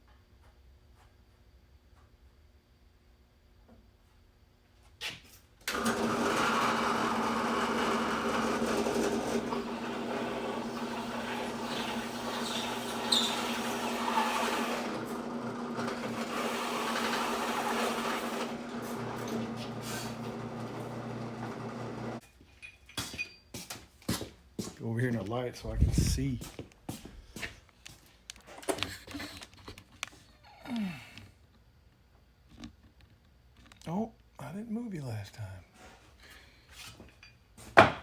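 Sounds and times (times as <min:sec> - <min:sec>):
electric drill boring metal: 0:05.7 - 0:22.2.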